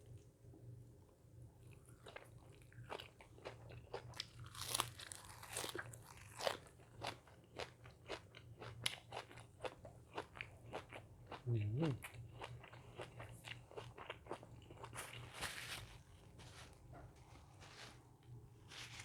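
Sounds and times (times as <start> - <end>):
person chewing crunchy food: 1.7 - 16.2.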